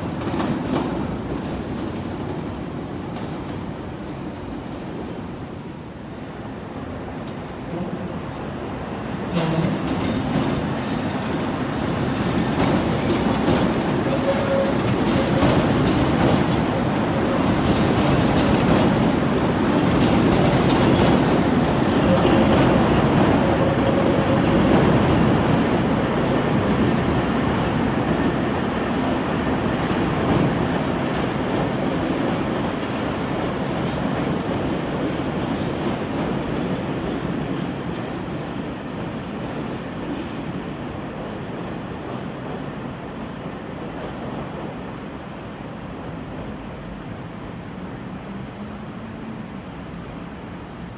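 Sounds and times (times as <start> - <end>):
train wheels clattering over rail joints: 7.8 - 38.1.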